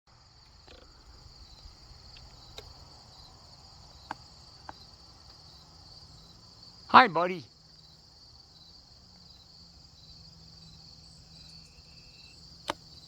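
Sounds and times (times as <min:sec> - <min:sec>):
crickets chirping: 0:00.1 - 0:13.0
faint clicks: 0:00.4 - 0:06.9.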